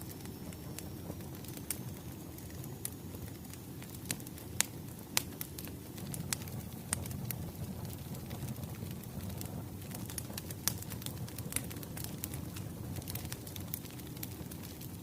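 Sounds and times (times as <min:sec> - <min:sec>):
wood fire crackling: 0:00.0 - 0:15.0
sharp pops of burning wood: 0:03.8 - 0:14.8.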